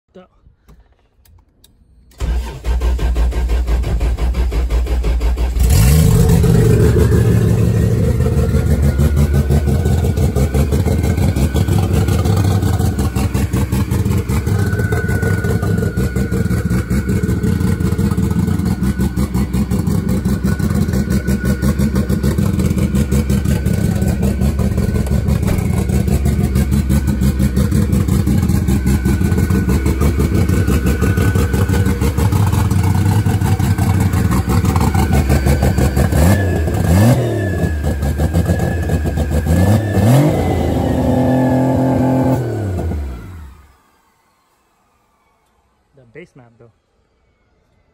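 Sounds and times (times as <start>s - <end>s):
car engine cranking and starting: 0.6s - 45.6s
car engine fast idle: 2.1s - 36.9s.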